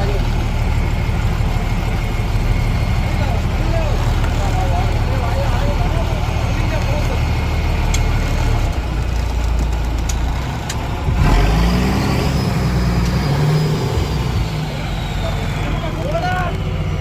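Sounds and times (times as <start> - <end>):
engine running: 0.0 - 17.0
sharp clicks: 7.8 - 11.6.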